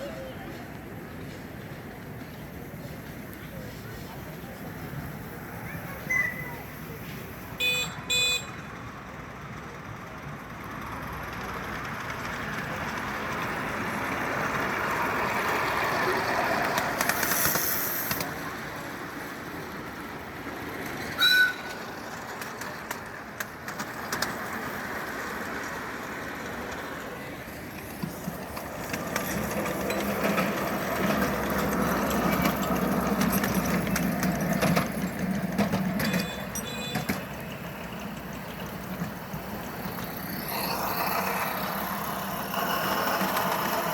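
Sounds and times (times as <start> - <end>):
small train running: 0.0 - 43.9
train whistle toots: 21.2 - 21.8.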